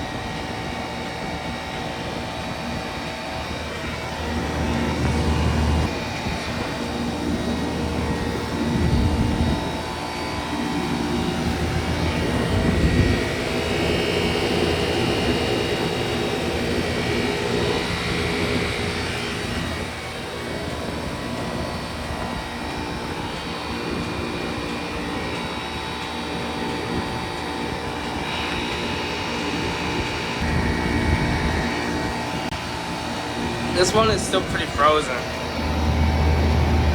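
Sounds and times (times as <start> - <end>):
compressor hum: 0.0 - 36.9
fan rush: 0.0 - 36.9
low rumbles: 33.4 - 36.9.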